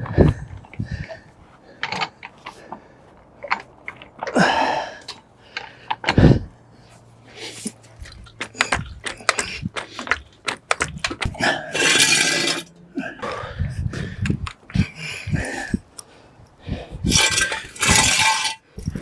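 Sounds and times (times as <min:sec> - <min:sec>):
scraping rush: 0:07.3 - 0:13.2, 0:16.9 - 0:19.0
clicks and knocks of handling: 0:07.6 - 0:11.4.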